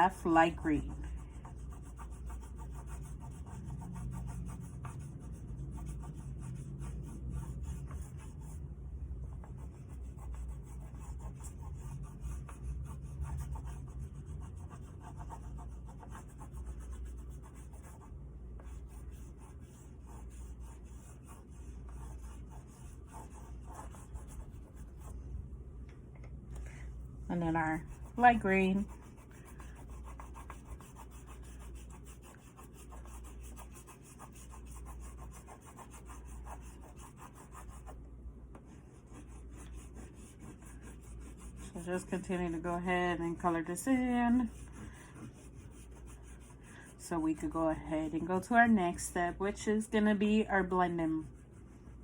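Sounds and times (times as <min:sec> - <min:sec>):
oil pastel rubbing on paper: 0:00.0 - 0:08.6, 0:09.4 - 0:25.2, 0:27.4 - 0:38.0, 0:38.7 - 0:48.4, 0:50.6 - 0:52.0
low steady hum: 0:00.0 - 0:52.0.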